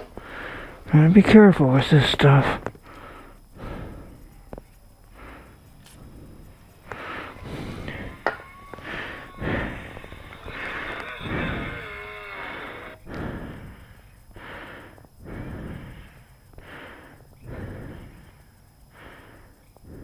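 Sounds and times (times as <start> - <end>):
wavering squeak: 7.0 - 13.0.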